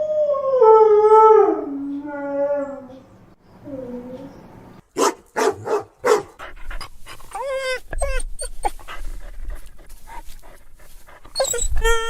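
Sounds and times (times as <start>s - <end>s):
dog whimpering whines: 7.3s - 8.8s, 11.3s - 12.0s
dog yelping: 7.3s - 8.8s, 11.3s - 12.0s.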